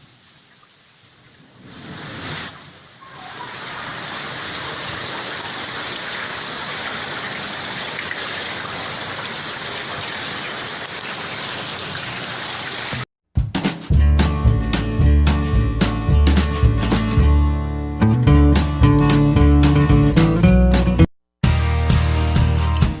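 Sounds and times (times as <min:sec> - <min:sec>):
heavy rain falling: 0:02.0 - 0:13.0.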